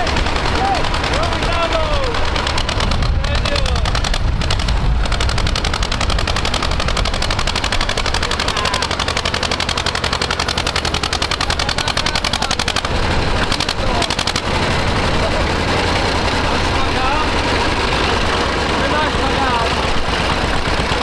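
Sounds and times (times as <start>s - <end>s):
tractor diesel engine at high revs: 0.0s - 21.0s.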